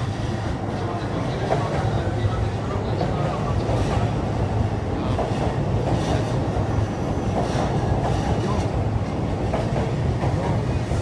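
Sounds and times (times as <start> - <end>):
train hum and rumble: 0.0 - 11.0.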